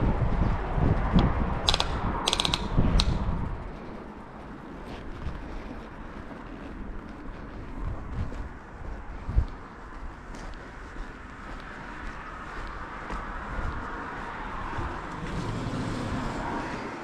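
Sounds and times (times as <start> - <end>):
metallic clicks and rattles: 1.6 - 3.3
low rumble: 12.1 - 17.0.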